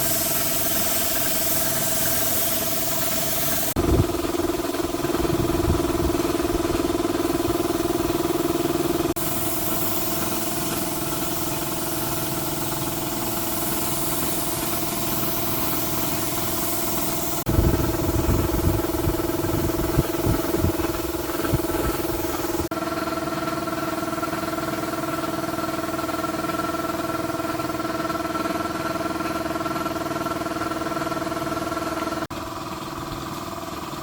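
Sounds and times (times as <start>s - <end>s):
machine humming: 0.0s - 22.7s.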